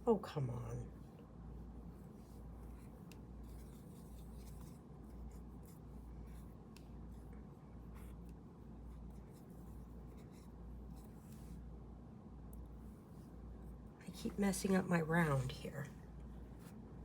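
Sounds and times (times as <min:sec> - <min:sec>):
paintbrush scratching: 0:01.8 - 0:11.6.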